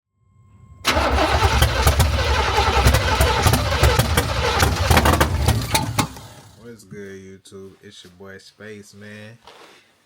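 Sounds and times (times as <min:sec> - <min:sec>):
car engine rumbling: 0:00.9 - 0:06.6
sharp engine cracks: 0:00.9 - 0:06.6.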